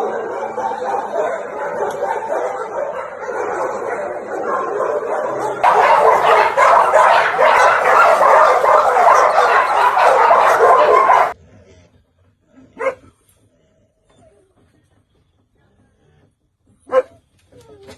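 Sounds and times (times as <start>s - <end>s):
many dogs barking: 0.0s - 11.4s
single dog bark: 4.4s - 11.4s.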